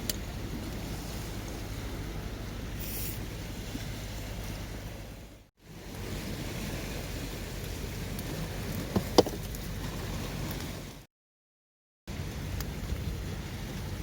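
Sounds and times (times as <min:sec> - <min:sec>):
campfire hissing: 0:02.7 - 0:03.4.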